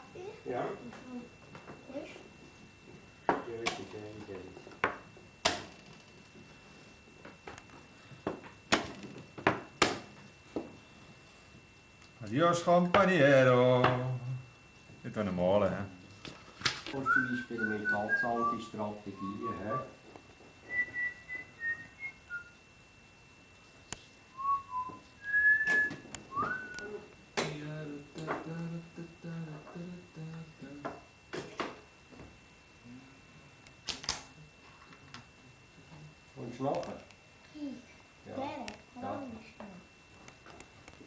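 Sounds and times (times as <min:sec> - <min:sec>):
person whistling a tune: 0:17.0 - 0:19.9, 0:20.7 - 0:22.6, 0:24.3 - 0:27.0.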